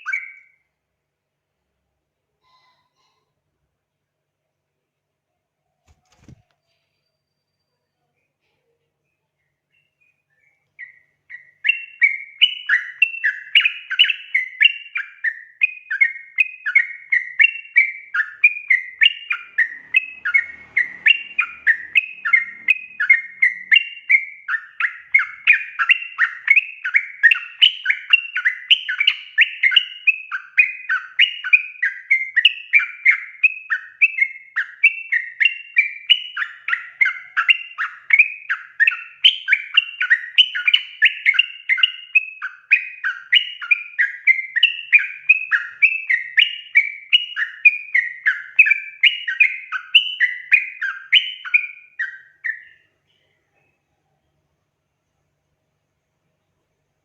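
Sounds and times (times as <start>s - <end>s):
bird bubbly chattering song: 9.8s - 52.8s.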